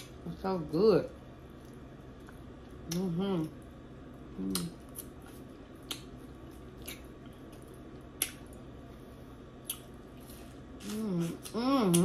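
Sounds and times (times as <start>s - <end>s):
person gnawing meat: 4.3s - 8.7s
wet mouth smacks: 5.8s - 6.2s, 6.8s - 7.1s, 8.1s - 8.5s.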